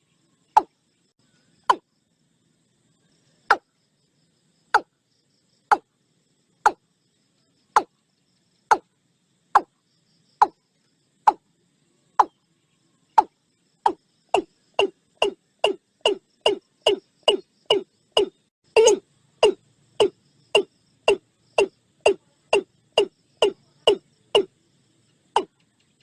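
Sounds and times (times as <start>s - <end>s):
watercock calling hollow notes: 13.9s - 24.5s.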